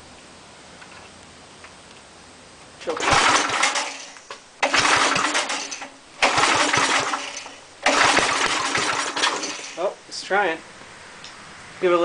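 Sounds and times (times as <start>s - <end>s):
engine pull-start cranking: 2.8s - 9.9s.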